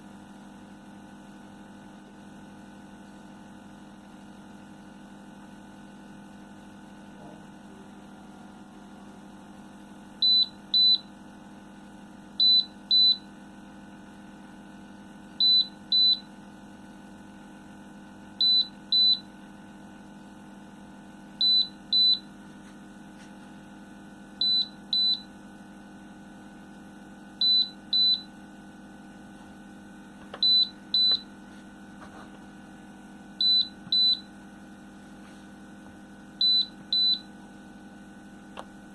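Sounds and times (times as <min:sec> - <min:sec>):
electrical hum: 0:00.0 - 0:38.9
high double beeps: 0:30.4 - 0:31.2.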